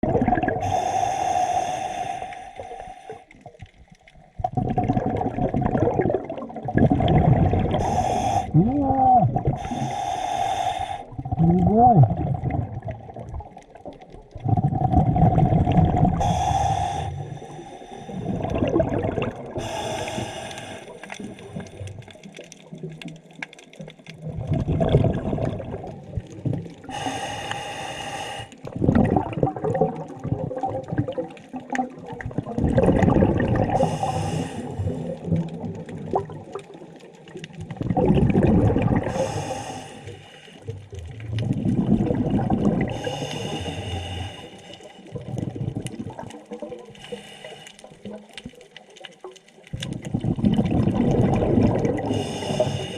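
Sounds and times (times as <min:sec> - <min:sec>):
exhaled bubbles rumbling: 0:00.0 - 0:27.4, 0:28.6 - 0:47.1, 0:47.8 - 0:52.9
regulator inhale hiss: 0:00.6 - 0:03.3, 0:07.8 - 0:08.6, 0:09.6 - 0:11.2, 0:16.2 - 0:18.3, 0:19.6 - 0:21.9, 0:26.8 - 0:28.7, 0:33.8 - 0:35.2, 0:39.1 - 0:40.7, 0:42.9 - 0:45.1, 0:47.0 - 0:48.0, 0:52.1 - 0:52.9.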